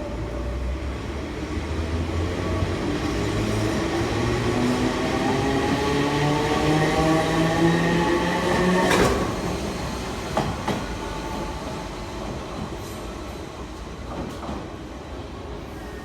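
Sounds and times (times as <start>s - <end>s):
rail-joint clacks: 8.8s - 9.6s.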